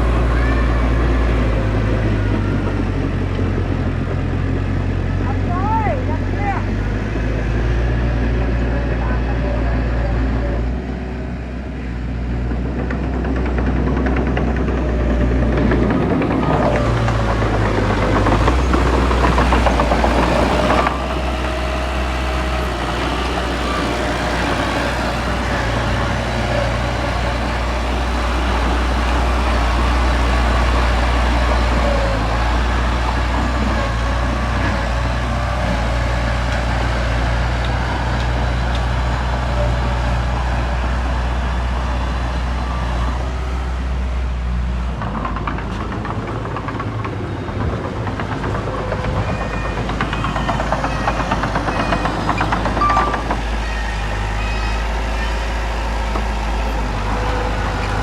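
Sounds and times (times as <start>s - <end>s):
diesel machinery engine droning: 0.0s - 58.0s.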